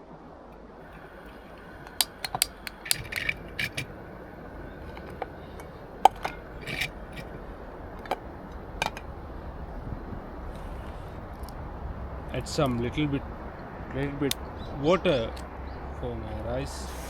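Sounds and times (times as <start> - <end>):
faint low rumble: 0.0 - 17.0
metal cookware clinking: 1.0 - 9.1.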